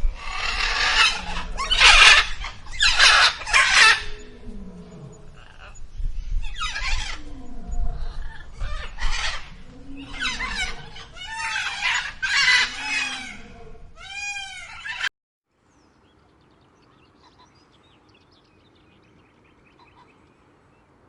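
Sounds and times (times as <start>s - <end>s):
bird harsh hoarse calls: 0.0s - 15.1s.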